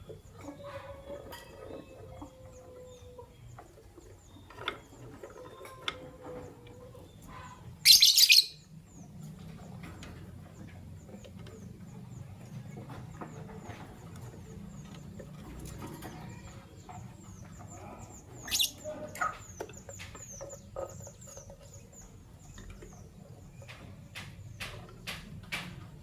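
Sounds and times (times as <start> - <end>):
lovebirds chirping: 0.0 - 25.0
short bird calls: 7.4 - 8.6, 18.0 - 18.9.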